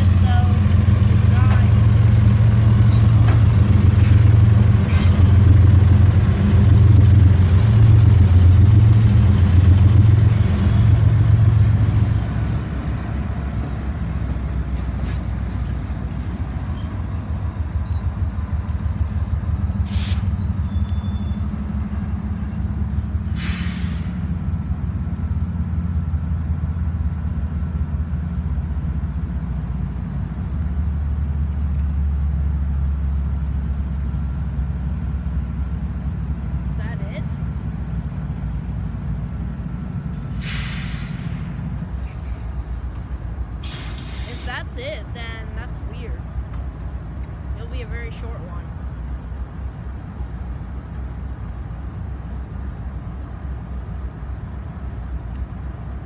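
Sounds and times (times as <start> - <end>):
diesel locomotive engine droning: 0.0 - 56.0
air hiss bursts: 40.3 - 42.6, 43.6 - 44.5.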